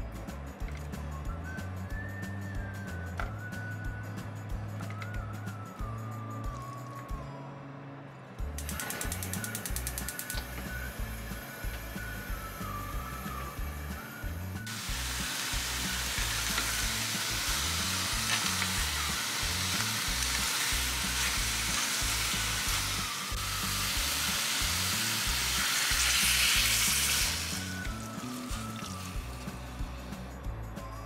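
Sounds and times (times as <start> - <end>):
food sizzling in a pan: 14.7 - 29.6.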